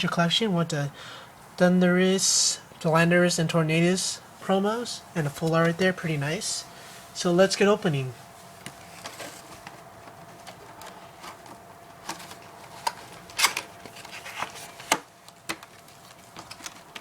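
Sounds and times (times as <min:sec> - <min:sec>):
packaging clicks and rustles: 0:08.6 - 0:17.0.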